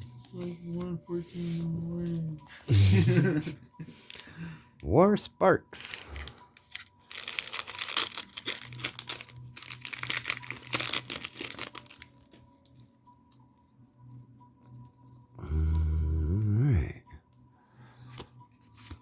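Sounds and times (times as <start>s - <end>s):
foil wrapper tearing and crinkling: 6.0s - 12.5s.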